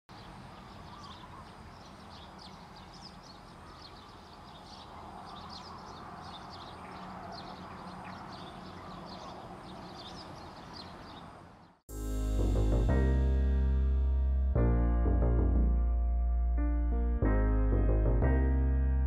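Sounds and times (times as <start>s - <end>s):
low outdoor background noise: 0.1s - 11.8s
small birds chirping: 0.1s - 11.8s.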